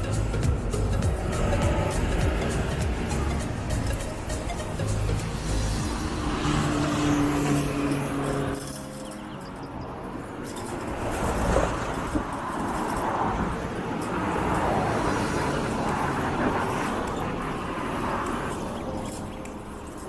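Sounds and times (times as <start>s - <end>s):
vehicles passing: 0.0s - 20.0s.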